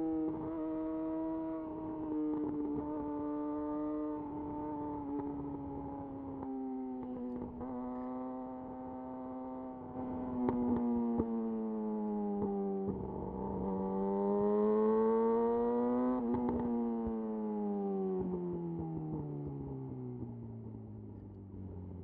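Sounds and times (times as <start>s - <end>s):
motorcycle engine revving: 0.1s - 19.9s.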